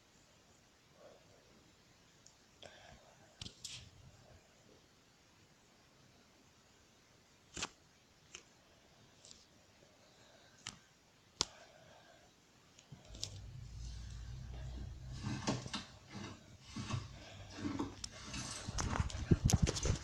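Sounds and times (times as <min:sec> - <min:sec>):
low rumble of handling: 0:13.0 - 0:20.0.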